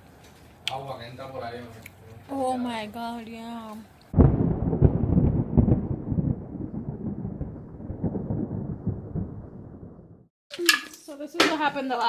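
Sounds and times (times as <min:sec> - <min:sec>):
wind: 0:00.0 - 0:12.0
pouring rain: 0:03.6 - 0:10.0.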